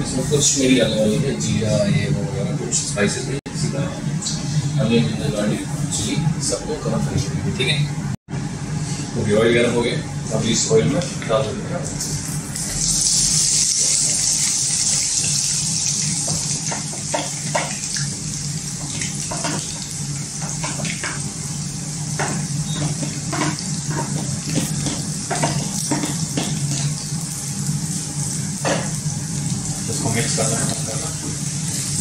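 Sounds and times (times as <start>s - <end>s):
vegetables sizzling in hot oil: 12.6s - 32.0s.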